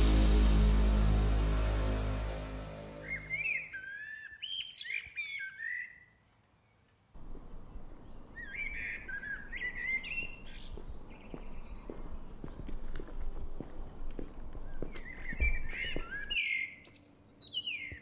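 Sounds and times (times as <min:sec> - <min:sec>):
outdoor background noise: 0:00.0 - 0:18.0
birds chirping: 0:02.8 - 0:05.9, 0:07.3 - 0:18.0.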